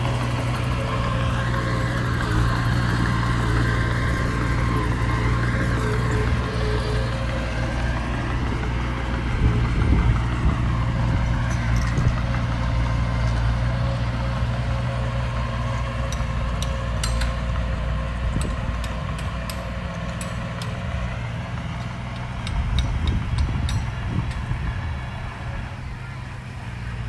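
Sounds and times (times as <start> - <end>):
diesel engine running: 0.0 - 27.0
metallic clicks and clanks: 16.1 - 17.5, 18.3 - 20.8.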